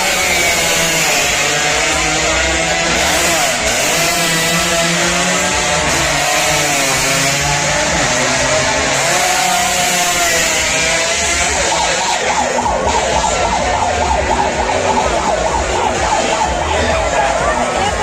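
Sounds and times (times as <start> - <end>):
racing motorcycle engines revving: 0.0 - 18.0.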